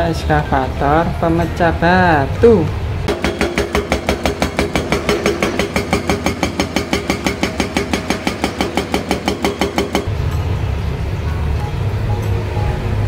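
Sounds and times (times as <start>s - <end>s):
excavator breaker hammering: 3.1s - 10.1s.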